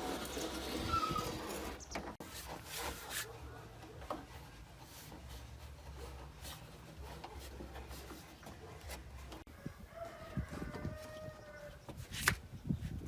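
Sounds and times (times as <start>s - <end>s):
faint rubbing strokes: 2.2s - 9.5s.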